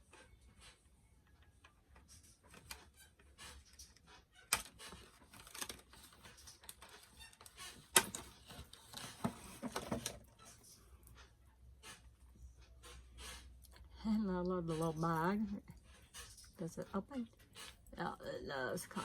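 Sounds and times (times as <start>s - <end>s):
plastic rattles: 4.5s - 10.8s.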